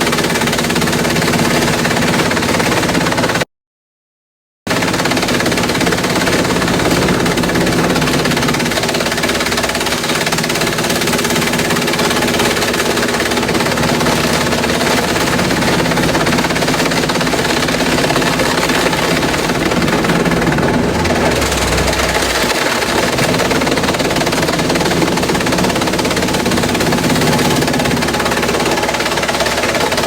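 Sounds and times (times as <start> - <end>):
shredder machine drone: 4.7 - 30.0.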